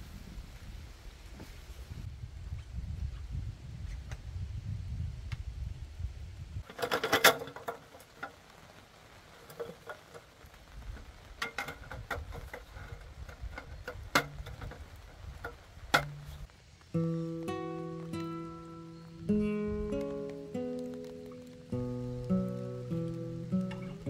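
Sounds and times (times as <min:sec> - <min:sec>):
objects clicking and knocking: 0:06.6 - 0:08.4, 0:11.4 - 0:16.4
acoustic guitar music: 0:15.9 - 0:24.0.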